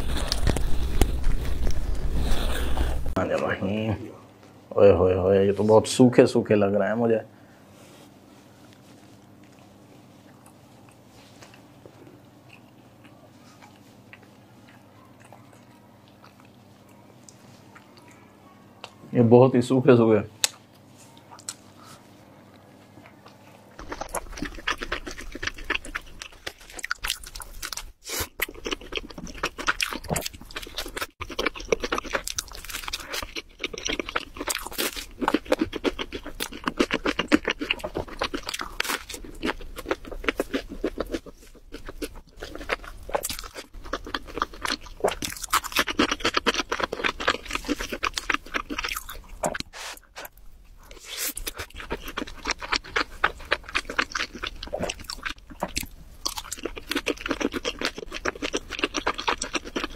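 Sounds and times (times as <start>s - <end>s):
crunching: 0.0s - 3.2s, 23.8s - 59.9s
person biting and chewing food: 0.0s - 3.2s, 23.1s - 59.9s.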